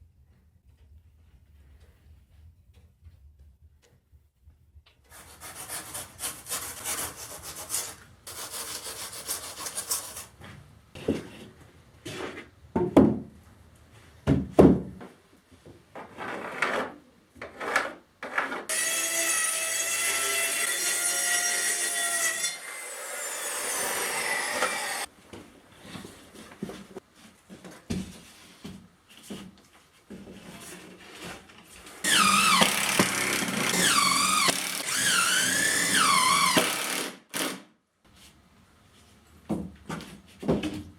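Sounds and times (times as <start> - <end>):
saw rasping through wood: 18.7 - 25.1, 32.0 - 37.6.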